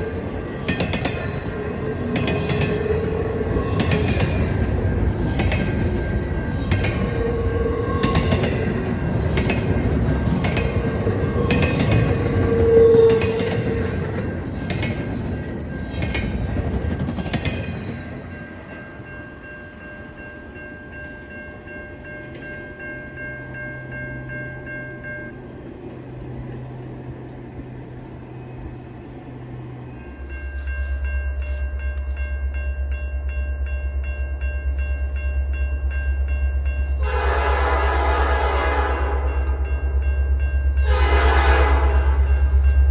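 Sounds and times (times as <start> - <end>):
train wheels clattering on rails: 0.0 - 18.8
locomotive horn: 12.3 - 13.7, 36.9 - 39.6, 40.8 - 42.3
diesel locomotive engine rumble: 25.3 - 42.9.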